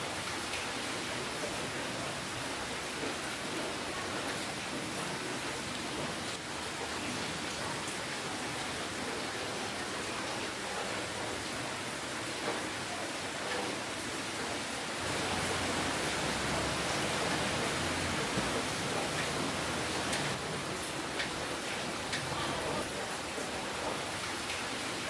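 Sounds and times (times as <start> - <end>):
steady rain hiss: 0.0 - 25.0
raindrop ticks: 16.4 - 24.7.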